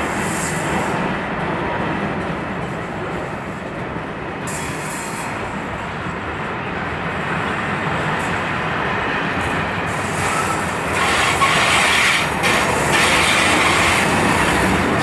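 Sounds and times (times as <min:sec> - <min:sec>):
train wheels rolling on rails: 0:00.0 - 0:15.0.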